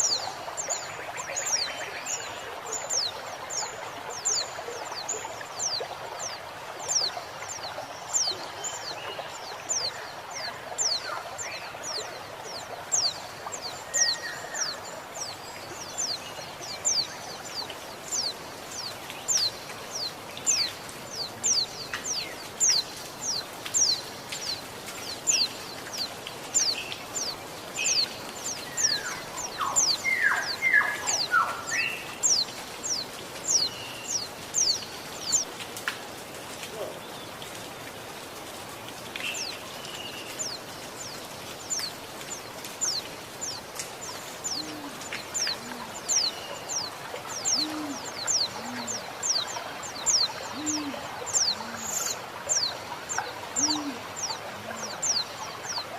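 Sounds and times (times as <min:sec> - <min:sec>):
flowing water hissing: 0:00.0 - 0:55.9
bird giving lower falling calls: 0:25.2 - 0:35.5, 0:39.2 - 0:52.7, 0:53.5 - 0:55.3.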